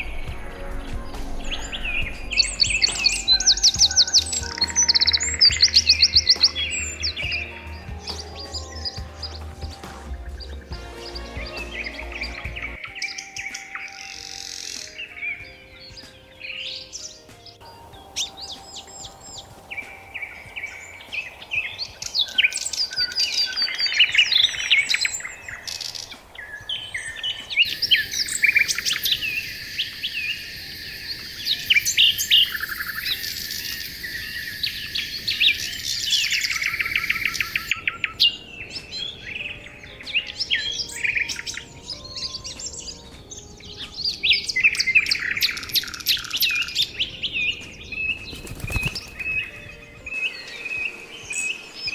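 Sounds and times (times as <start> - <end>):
songbirds chirping and singing: 0.0 - 51.9.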